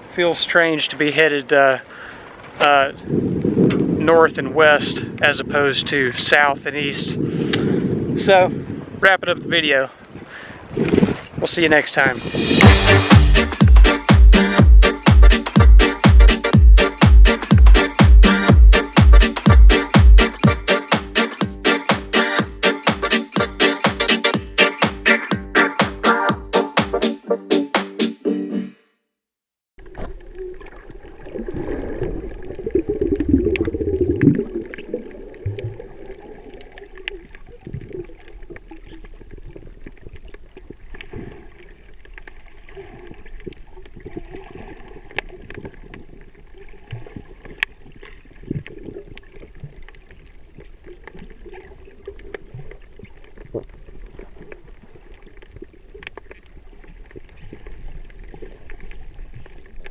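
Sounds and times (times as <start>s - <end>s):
wind on microphone: 2.8s - 12.6s.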